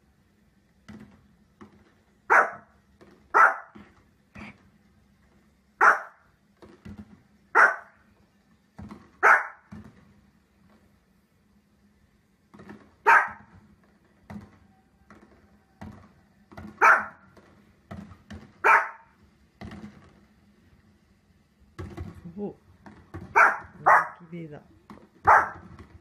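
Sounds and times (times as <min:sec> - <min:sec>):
dog barking: 0:02.3 - 0:02.7, 0:03.3 - 0:03.8, 0:05.8 - 0:06.2, 0:07.6 - 0:08.0, 0:09.2 - 0:09.7, 0:13.0 - 0:13.5, 0:16.8 - 0:17.2, 0:18.6 - 0:19.1, 0:23.3 - 0:24.2, 0:25.2 - 0:25.6.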